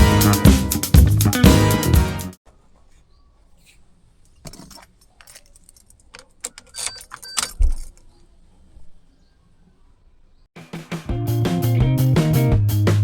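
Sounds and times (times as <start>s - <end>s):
keys jangling: 4.4s - 8.1s.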